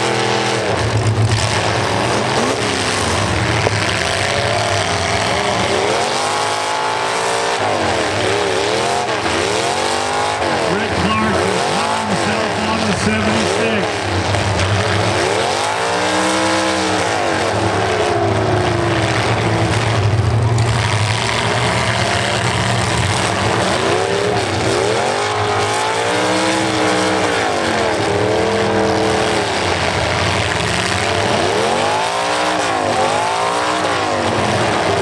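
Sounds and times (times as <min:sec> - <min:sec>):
car engines revving: 0:00.0 - 0:35.0
cars ramming each other: 0:00.0 - 0:35.0
loud din: 0:10.4 - 0:15.4.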